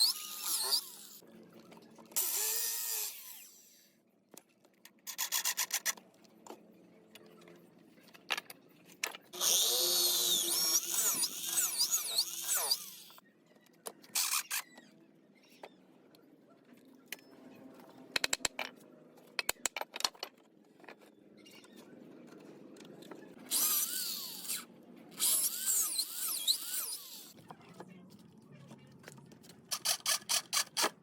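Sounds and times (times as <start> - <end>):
power tool cutting wood: 0.0 - 1.2, 2.2 - 3.8, 9.4 - 13.2, 23.5 - 27.4.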